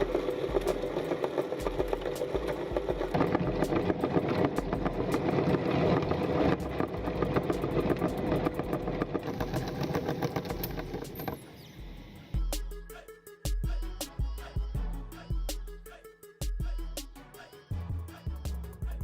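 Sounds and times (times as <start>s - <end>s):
meat grinder motor running: 0.0s - 11.2s
music beat with heavy bass: 0.0s - 11.2s, 11.8s - 19.0s
grinding clicks: 0.0s - 11.6s.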